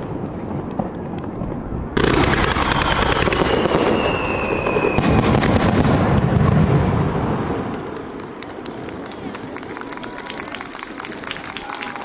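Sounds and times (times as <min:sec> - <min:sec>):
fireworks crackling and popping: 0:00.0 - 0:12.0
fireworks loud burst: 0:02.0 - 0:07.6.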